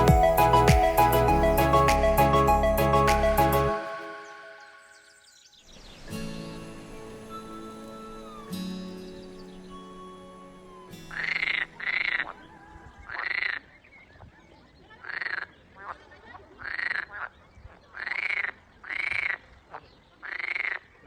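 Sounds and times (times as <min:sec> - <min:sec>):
frogs croaking: 0:06.8 - 0:13.8, 0:15.0 - 0:16.0, 0:16.6 - 0:21.0.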